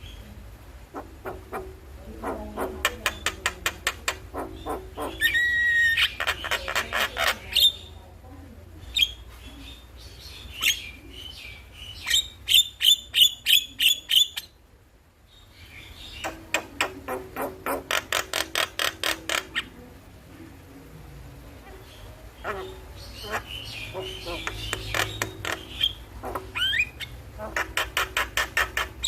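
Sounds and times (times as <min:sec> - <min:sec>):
myna chattering song: 0:00.4 - 0:08.0, 0:16.1 - 0:29.0.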